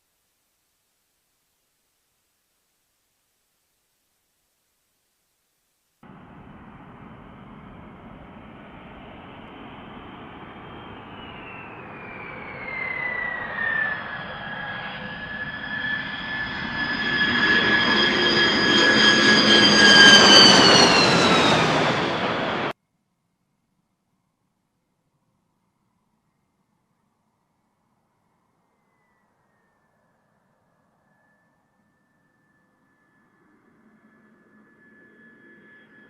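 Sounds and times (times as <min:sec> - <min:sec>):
jet engine whine: 0:06.0 - 0:22.8, 0:28.5 - 0:36.0.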